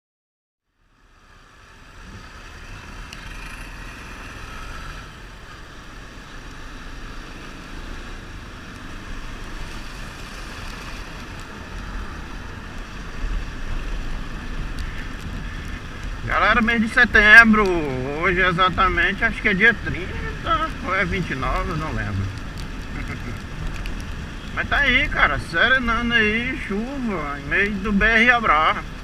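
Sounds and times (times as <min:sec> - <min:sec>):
motorcycle engine rumble: 0:00.7 - 0:29.0
wind rushing over microphone: 0:08.3 - 0:28.0.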